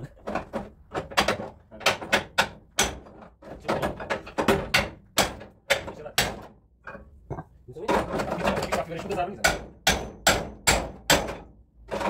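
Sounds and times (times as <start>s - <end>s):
hammer tapping on metal panel: 1.0s - 6.5s, 8.5s - 11.5s.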